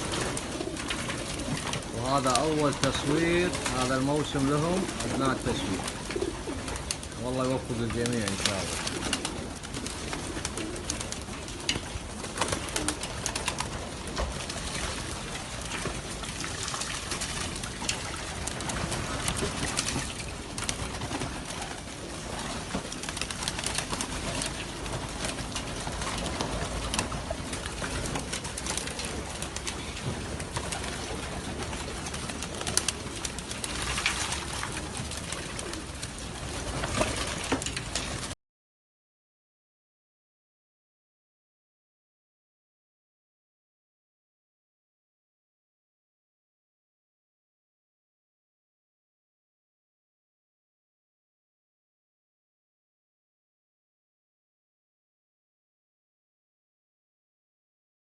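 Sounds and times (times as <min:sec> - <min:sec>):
pigeons cooing: 0:00.0 - 0:38.3.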